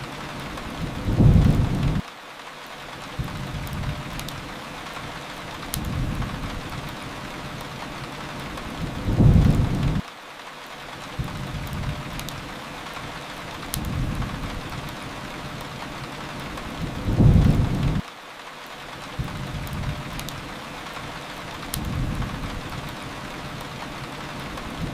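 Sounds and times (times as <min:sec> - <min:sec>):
steady rain: 0:00.0 - 0:24.9
wood fire crackling: 0:00.0 - 0:24.9
low thunder-like rumble: 0:00.8 - 0:02.0, 0:08.8 - 0:10.0, 0:16.8 - 0:18.0.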